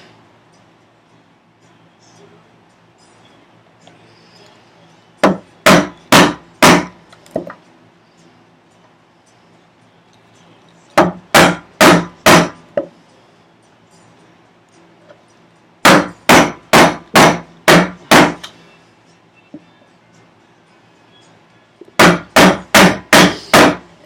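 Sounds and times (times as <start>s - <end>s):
chisel being struck into wood: 5.2s - 7.6s, 11.0s - 12.9s, 15.8s - 18.5s, 22.0s - 23.9s.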